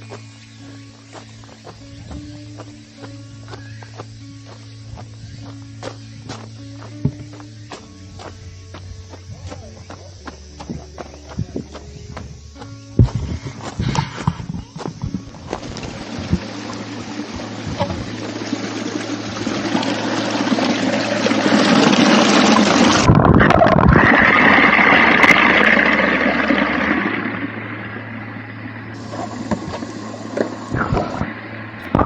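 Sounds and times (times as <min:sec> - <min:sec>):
waterfall roaring: 0:15.4 - 0:32.0.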